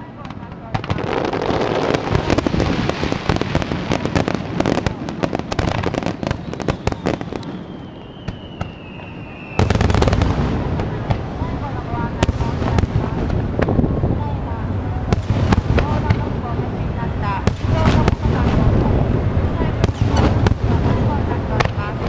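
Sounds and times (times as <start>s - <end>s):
fireworks crackling: 0.0s - 22.0s
falling firework whistle: 6.1s - 10.2s.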